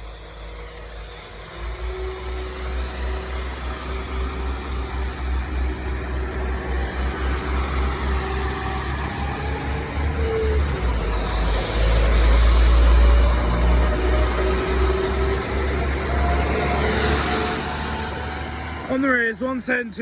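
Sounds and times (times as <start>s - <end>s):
diesel train pulling away: 0.0s - 20.0s.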